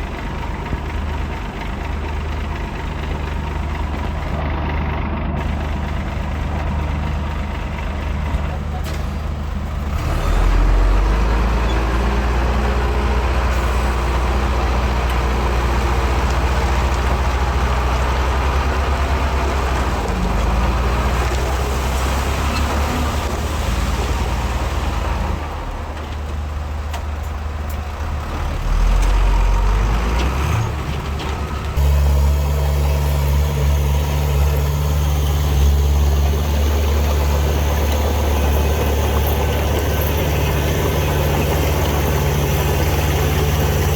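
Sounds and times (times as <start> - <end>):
heavy diesel engines running: 0.0 - 43.9.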